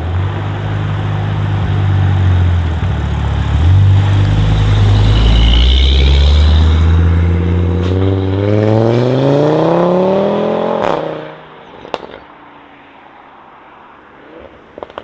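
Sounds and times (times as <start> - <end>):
exhaust crack and pops: 0.0 - 6.8, 7.8 - 8.4, 11.8 - 12.4, 14.2 - 15.0
car engine accelerating hard: 0.0 - 11.5.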